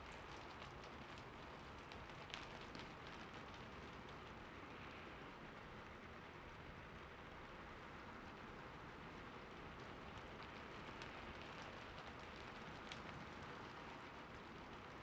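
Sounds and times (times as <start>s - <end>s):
raindrop ticks: 9.8s - 14.4s.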